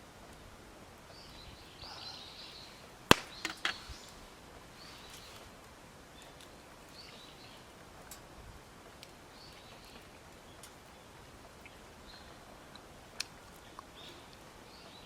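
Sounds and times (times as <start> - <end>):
birds chirping: 1.1 - 7.8, 9.1 - 15.0
sharp crack: 3.1 - 4.2.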